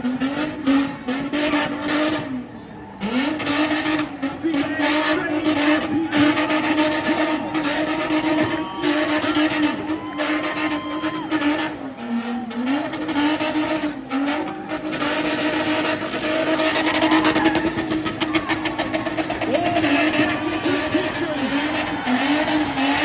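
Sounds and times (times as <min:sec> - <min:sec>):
car engine at high revs: 0:00.0 - 0:23.0.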